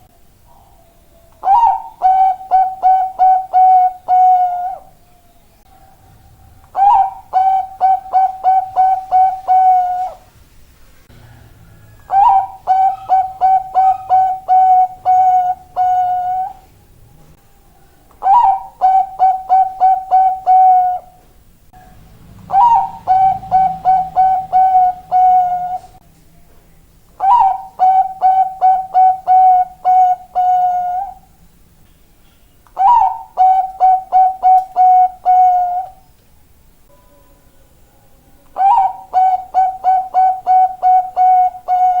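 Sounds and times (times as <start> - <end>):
dove cooing: 0.0 - 5.0, 5.7 - 10.3, 11.2 - 16.7, 18.1 - 21.2, 22.4 - 26.0, 27.2 - 31.4, 32.8 - 36.0, 38.5 - 42.0.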